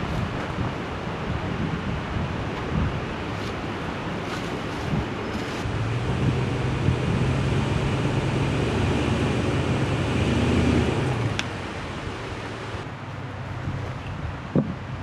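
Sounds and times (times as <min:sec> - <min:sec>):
pickup truck engine humming: 0:05.6 - 0:13.3.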